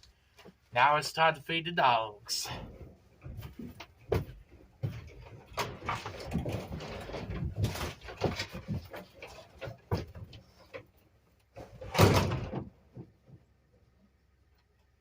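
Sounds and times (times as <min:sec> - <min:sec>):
knocks and clatter: 0:02.7 - 0:10.9, 0:11.6 - 0:13.5.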